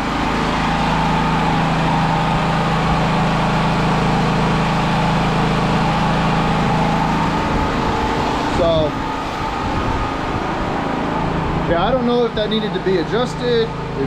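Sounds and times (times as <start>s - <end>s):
generator engine running: 0.0s - 14.0s.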